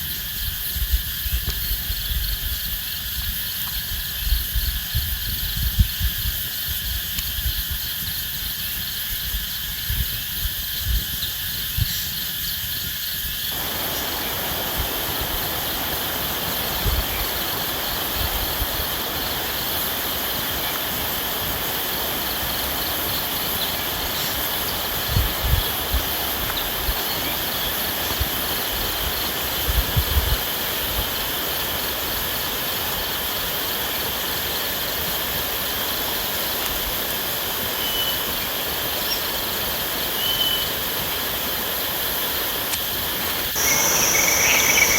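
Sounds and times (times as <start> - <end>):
insects buzzing: 0.0 - 44.9
steady rushing noise: 13.5 - 31.0, 43.4 - 44.9.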